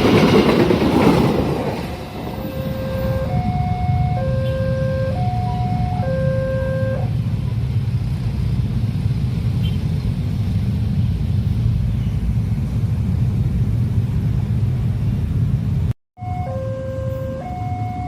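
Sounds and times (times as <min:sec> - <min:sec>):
train rumbling past: 0:00.0 - 0:18.0
two-tone crossing warning signal: 0:02.3 - 0:07.2, 0:16.2 - 0:18.0.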